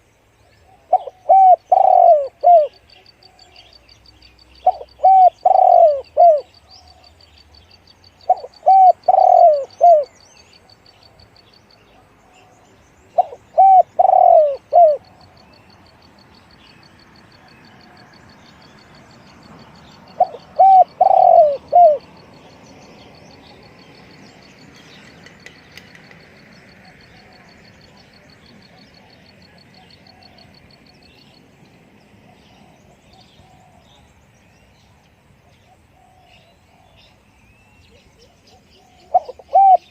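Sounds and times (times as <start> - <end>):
dove cooing: 0.5 - 3.6, 4.6 - 7.2, 8.2 - 10.2, 13.1 - 15.5, 20.1 - 23.7, 25.8 - 30.7, 32.2 - 34.1, 35.4 - 37.0, 37.9 - 39.9.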